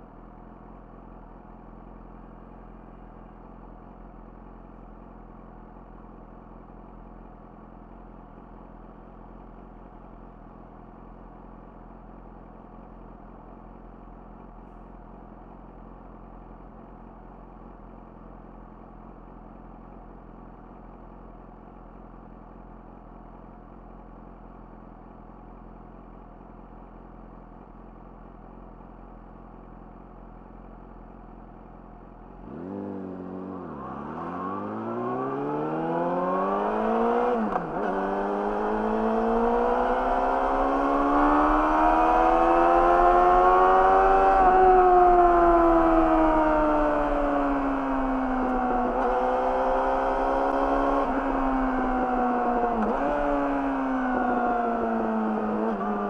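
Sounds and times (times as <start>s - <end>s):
motorcycle engine idling: 0.0s - 32.4s.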